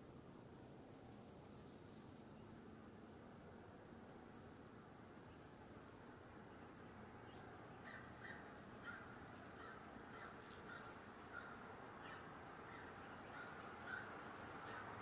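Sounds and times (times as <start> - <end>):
quiet outdoor hiss: 0.0 - 15.0
faint bird calls: 7.3 - 15.0.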